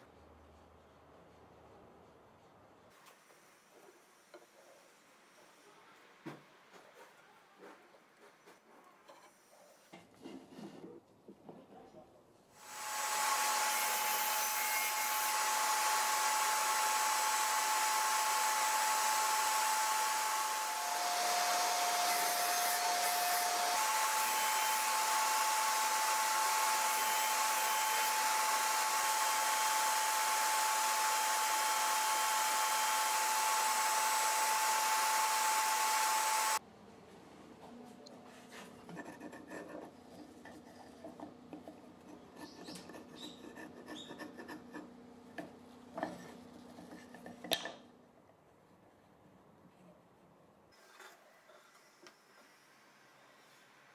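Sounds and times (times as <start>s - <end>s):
table saw motor whine: 12.6s - 36.6s.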